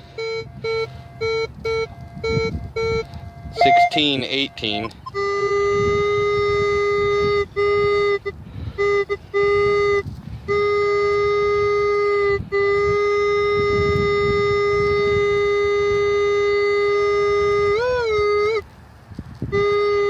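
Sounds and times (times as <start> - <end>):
metal detector target tone: 0.1 - 7.3.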